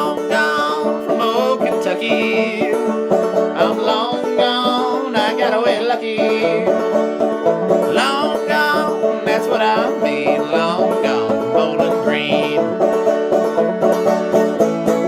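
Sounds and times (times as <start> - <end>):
banjo picking: 0.0 - 15.0
wavering sliding melody line: 6.6 - 14.2.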